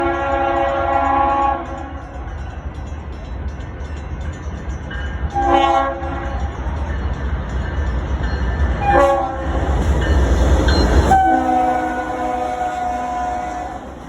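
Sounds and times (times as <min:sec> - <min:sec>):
locomotive horn: 0:00.0 - 0:02.1, 0:05.3 - 0:06.4, 0:08.8 - 0:09.6, 0:11.0 - 0:14.0
train rumbling: 0:00.0 - 0:14.0.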